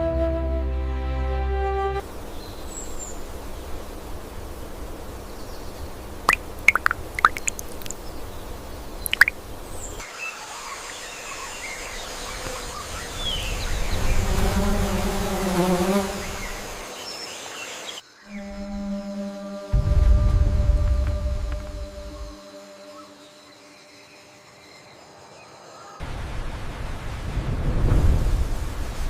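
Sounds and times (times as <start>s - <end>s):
background music: 0.0s - 2.0s.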